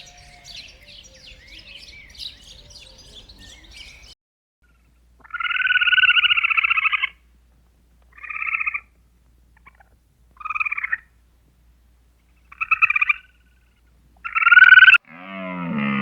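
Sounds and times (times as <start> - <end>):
animal trilled calls: 0.0 - 4.1, 14.2 - 15.0.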